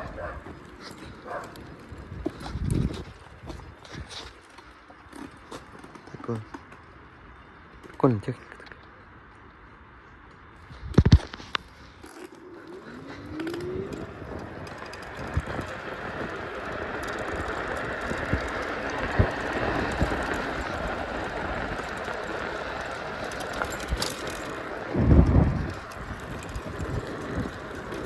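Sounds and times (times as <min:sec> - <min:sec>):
vehicle rushing rumble: 0:11.0 - 0:28.0
rising engine note: 0:12.3 - 0:21.3.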